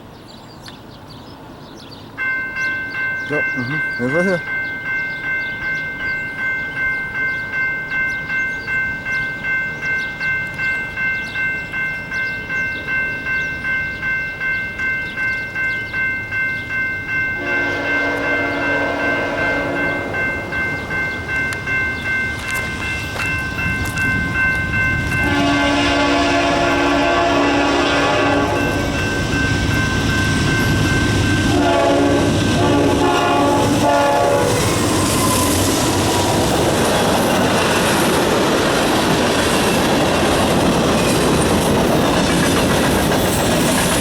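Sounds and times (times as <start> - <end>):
train rumble: 1.0 - 44.0
railroad crossing bell ringing: 1.5 - 44.0
locomotive horn blowing: 17.4 - 20.6, 25.2 - 29.2, 31.4 - 34.8.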